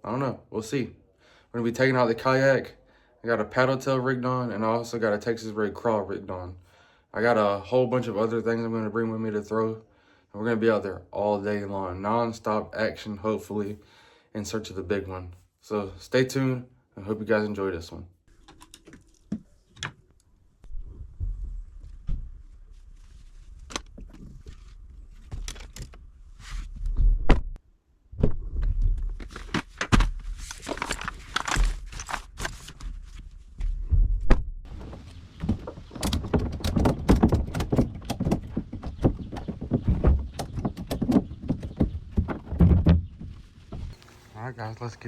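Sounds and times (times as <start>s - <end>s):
fishing gear clattering: 18.3s - 20.0s
footsteps: 20.7s - 25.5s, 33.4s - 45.0s.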